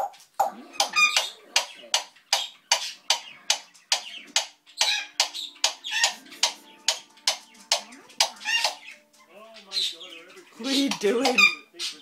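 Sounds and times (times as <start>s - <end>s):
parrot making sharp clicks: 0.4s - 8.9s.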